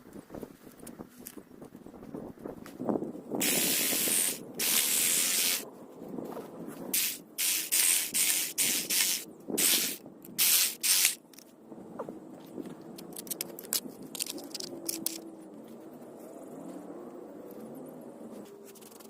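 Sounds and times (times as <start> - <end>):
sprayer hissing: 3.4 - 5.6, 7.0 - 11.2.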